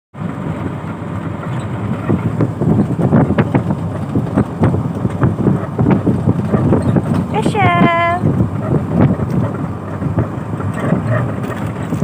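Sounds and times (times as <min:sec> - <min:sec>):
wind buffeting the microphone: 0:00.3 - 0:12.0
crackles and rustles: 0:08.4 - 0:12.0.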